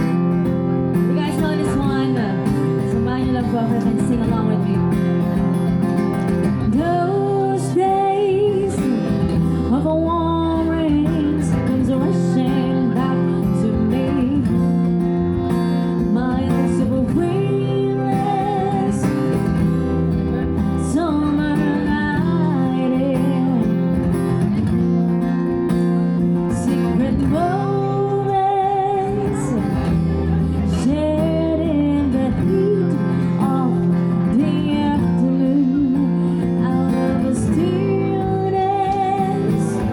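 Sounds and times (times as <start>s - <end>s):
acoustic guitar strumming: 0.0s - 39.9s
person singing: 6.5s - 14.6s, 15.2s - 24.0s, 26.5s - 39.9s.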